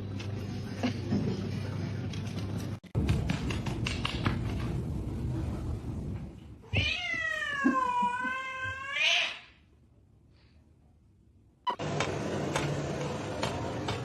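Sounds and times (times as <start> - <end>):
cat meowing: 6.7 - 9.5.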